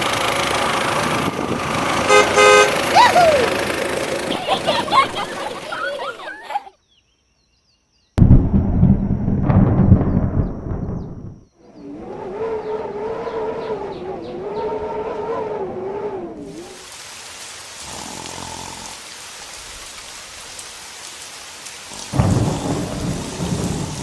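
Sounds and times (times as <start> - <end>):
heavy rain hiss: 0.0 - 6.7, 16.5 - 24.0
thunder rumble: 0.6 - 6.4, 8.2 - 16.8, 21.9 - 24.0
wavering whining tone: 11.6 - 16.8.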